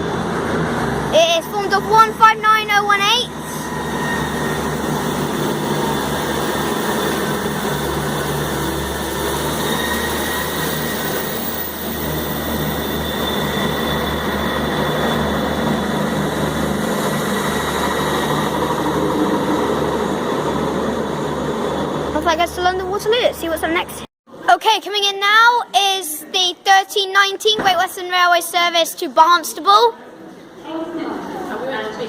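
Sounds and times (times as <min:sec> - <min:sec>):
diesel train engines droning: 0:00.0 - 0:24.1
high-pitched whines: 0:01.4 - 0:24.1.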